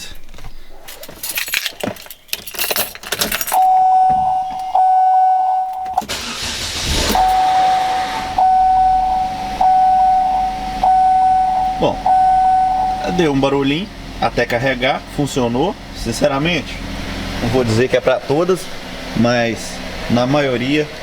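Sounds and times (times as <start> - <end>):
car engine cranking: 0.1 - 21.0
keys jangling: 0.2 - 3.8
dashboard warning chime beeping: 3.5 - 13.8
car engine idling: 6.0 - 21.0.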